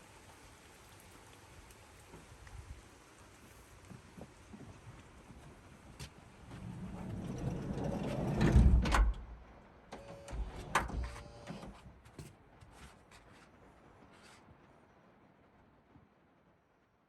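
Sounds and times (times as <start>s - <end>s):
van sliding door rolling: 6.4s - 9.4s, 10.0s - 11.8s
sliding door closing: 6.5s - 11.8s.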